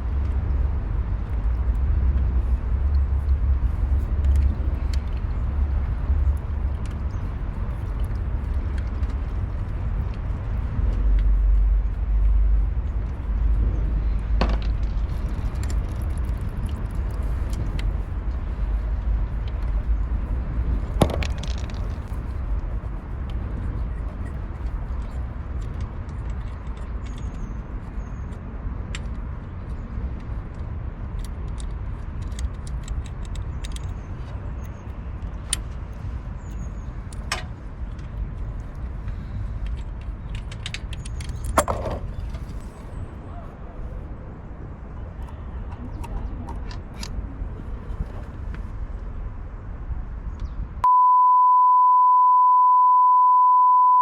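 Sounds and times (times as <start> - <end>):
steady low rumble: 0.0 - 51.0
electronic beep tone: 50.8 - 54.0.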